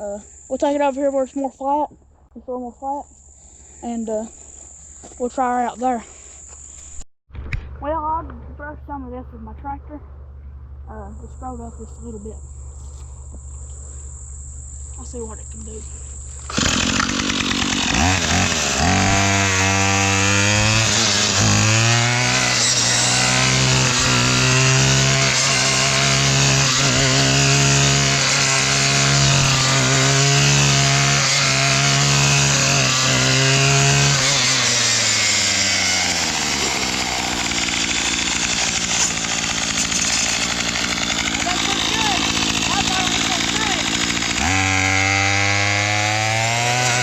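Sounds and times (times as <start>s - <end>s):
brush cutter engine at high revs: 16.3s - 47.0s.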